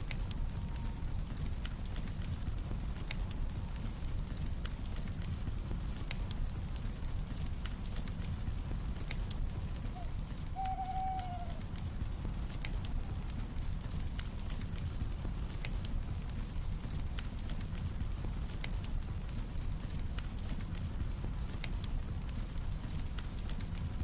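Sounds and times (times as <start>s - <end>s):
campfire crackling: 0.0s - 24.0s
crickets trilling: 0.0s - 24.0s
owl hoot: 10.0s - 11.6s.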